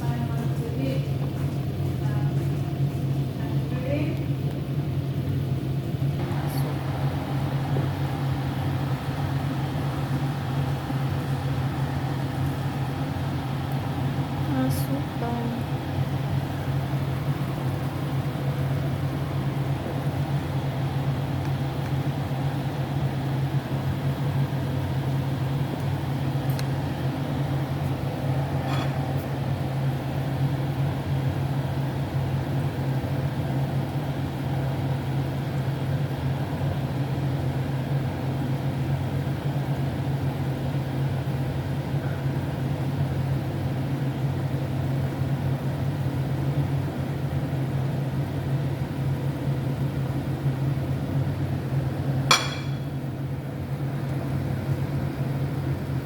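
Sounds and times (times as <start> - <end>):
pot simmering on stove: 4.6 - 14.5.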